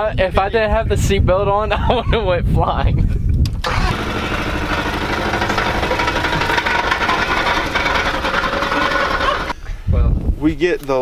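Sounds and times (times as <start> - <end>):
car engine idling: 3.7 - 9.6.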